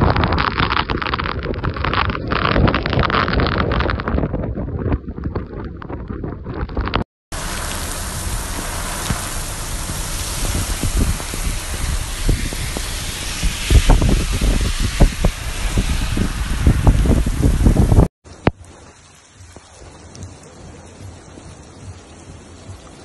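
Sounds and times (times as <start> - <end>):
wind buffeting microphone: 1.3 - 18.1
heavy rain: 7.3 - 23.0.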